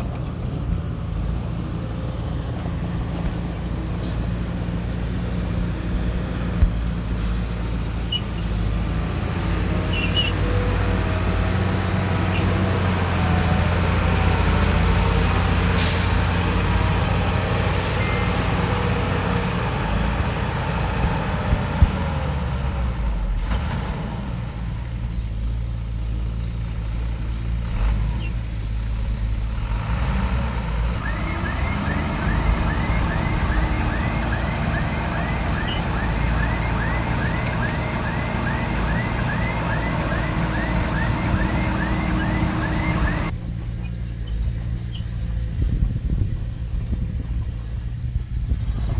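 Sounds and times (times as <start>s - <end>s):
diesel engine running: 0.0s - 48.9s
brief hiss: 15.8s - 16.5s.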